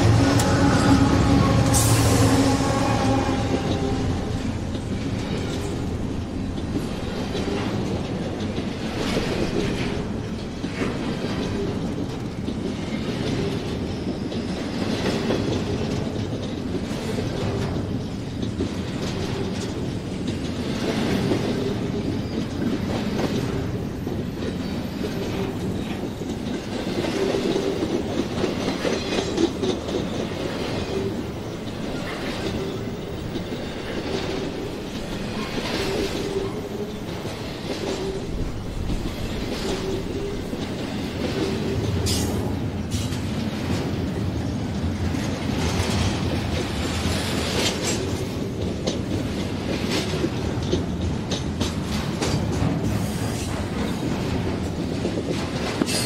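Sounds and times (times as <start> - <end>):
diesel locomotive hum: 0.0 - 12.7
freight cars rumbling and clattering: 0.0 - 56.0.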